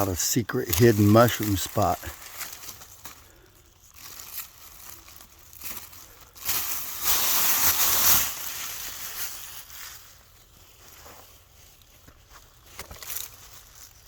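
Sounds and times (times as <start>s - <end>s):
dry leaves rustling and crunching: 0.0s - 14.0s.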